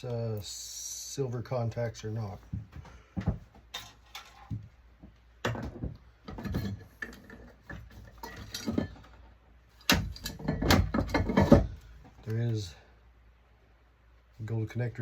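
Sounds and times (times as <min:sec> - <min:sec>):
metal parts and tools clinking: 0:03.7 - 0:04.5, 0:06.3 - 0:09.2, 0:09.8 - 0:11.8.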